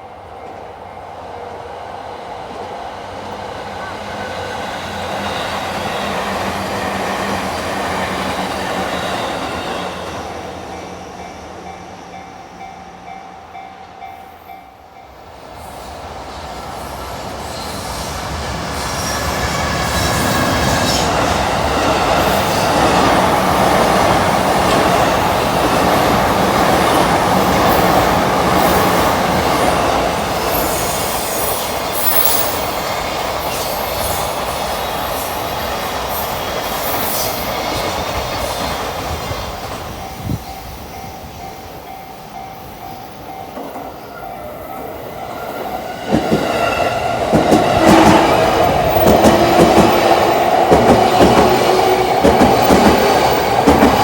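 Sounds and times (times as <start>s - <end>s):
train passing: 0.0s - 54.0s.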